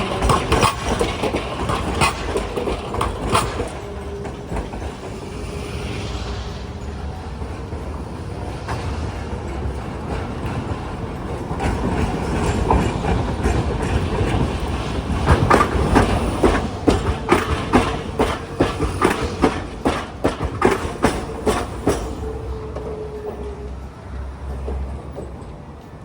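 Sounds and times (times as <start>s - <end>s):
streetcar wheels clacking: 0.0s - 26.0s
steady tone: 3.9s - 9.6s.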